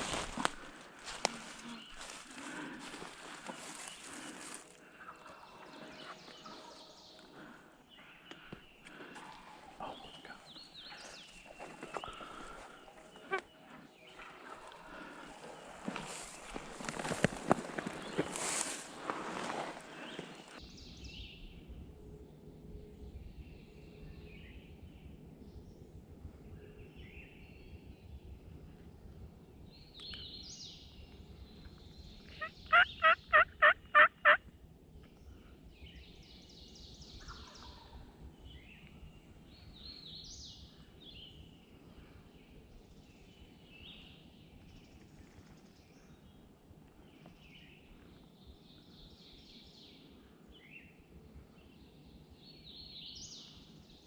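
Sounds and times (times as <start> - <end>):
songbirds chirping: 0.0 - 54.0
turkey yelps: 32.4 - 34.4.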